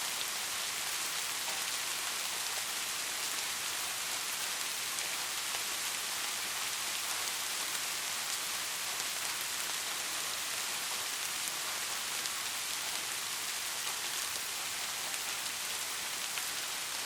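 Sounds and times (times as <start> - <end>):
steady rain falling: 0.0 - 17.0
faint raindrop ticks: 1.1 - 3.4.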